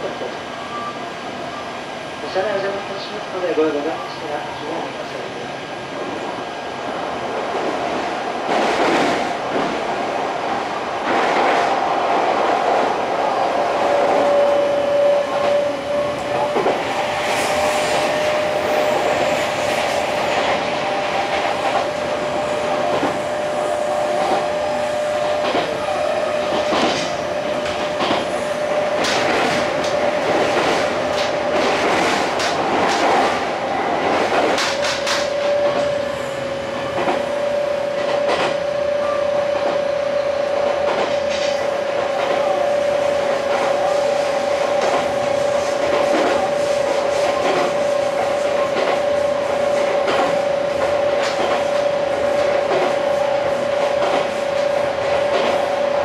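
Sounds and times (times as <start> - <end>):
train running rumble: 6.9 - 56.0.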